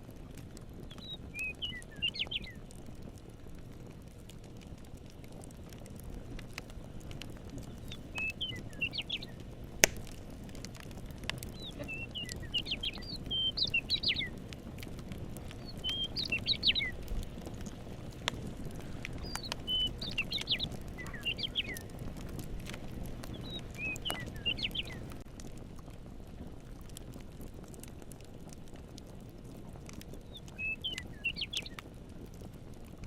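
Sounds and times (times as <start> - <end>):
campfire crackling and popping: 0.0 - 33.0
songbird chirping: 0.9 - 2.6, 7.7 - 9.4, 11.5 - 14.4, 15.6 - 17.1, 19.1 - 21.9, 23.2 - 25.1, 30.2 - 31.8.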